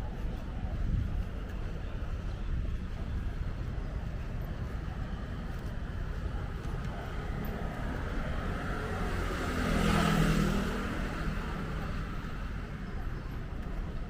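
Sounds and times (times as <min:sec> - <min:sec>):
low traffic rumble: 0:00.0 - 0:14.0
vehicle passing by: 0:07.4 - 0:12.6.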